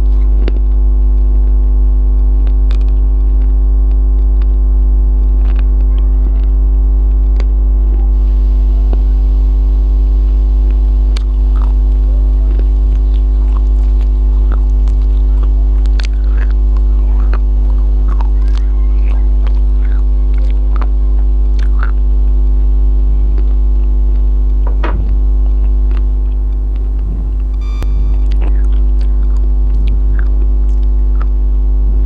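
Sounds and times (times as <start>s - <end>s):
loud electrical hum: 0.0s - 32.0s
person eating and chewing: 10.3s - 32.0s.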